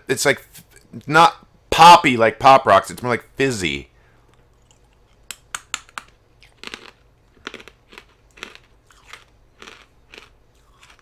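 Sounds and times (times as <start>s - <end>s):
person chewing hard candy: 4.3s - 11.0s.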